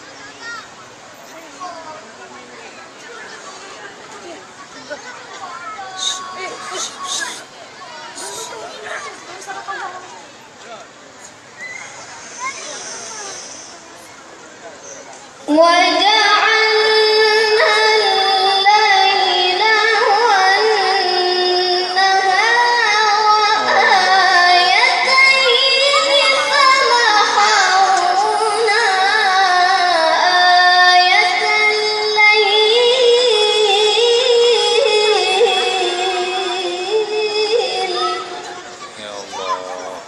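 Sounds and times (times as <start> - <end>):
child reciting melodically: 4.2 - 10.3, 15.4 - 40.0.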